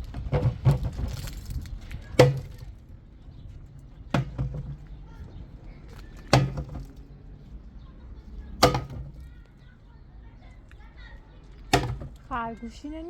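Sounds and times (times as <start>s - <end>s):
sharp knocks: 8.6s - 9.2s, 11.7s - 12.2s.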